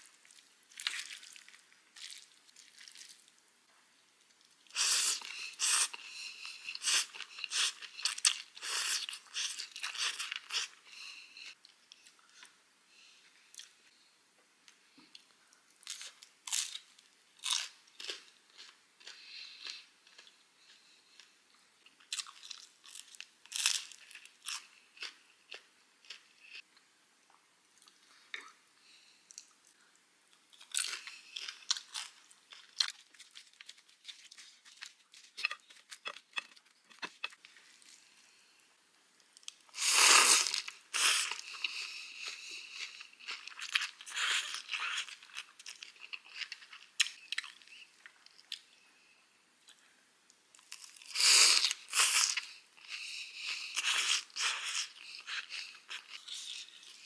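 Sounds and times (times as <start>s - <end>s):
chewing and crunching food: 0.0s - 3.4s, 15.0s - 26.7s, 29.2s - 38.4s, 39.2s - 48.8s, 50.5s - 57.0s.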